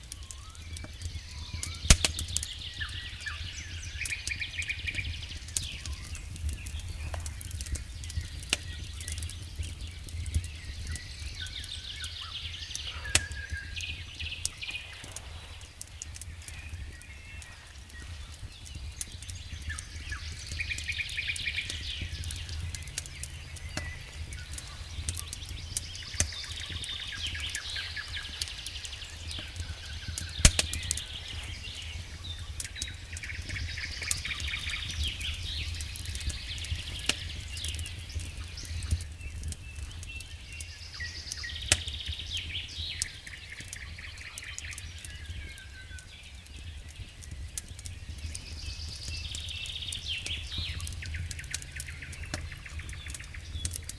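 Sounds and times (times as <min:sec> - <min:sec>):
campfire crackling and popping: 0:00.0 - 0:53.9
songbird singing: 0:00.0 - 0:53.9
low steady rumble: 0:21.2 - 0:30.2.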